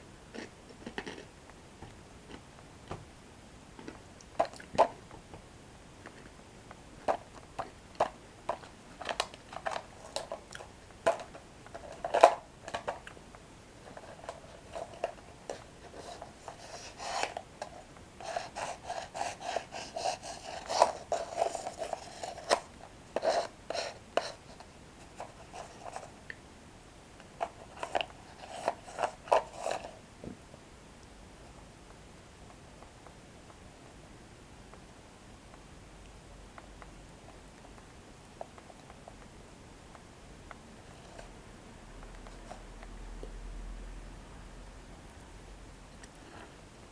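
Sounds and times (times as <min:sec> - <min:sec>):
chewing crunchy breadsticks: 0:00.3 - 0:01.4.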